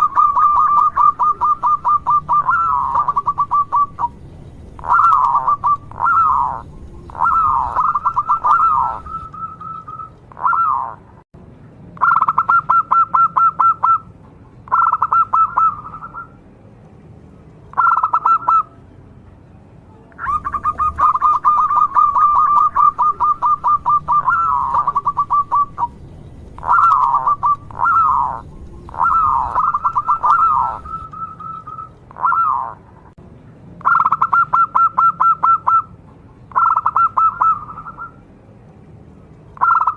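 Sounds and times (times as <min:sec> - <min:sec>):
dove cooing: 0:00.0 - 0:04.2, 0:04.8 - 0:11.0, 0:12.0 - 0:14.1, 0:14.7 - 0:16.3, 0:17.8 - 0:18.7, 0:20.2 - 0:32.8, 0:33.8 - 0:35.9, 0:36.5 - 0:38.2, 0:39.6 - 0:39.9.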